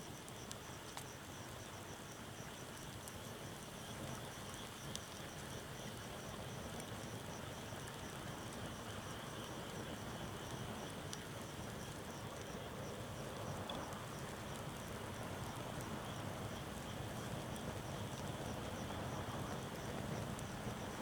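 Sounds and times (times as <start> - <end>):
insects chirping: 6.2 - 21.0.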